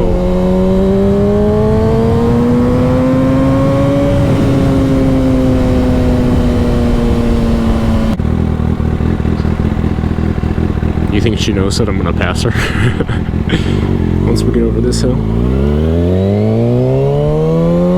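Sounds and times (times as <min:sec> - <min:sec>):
motorcycle engine revving: 0:00.0 - 0:17.9
riding wind rush: 0:00.0 - 0:17.9.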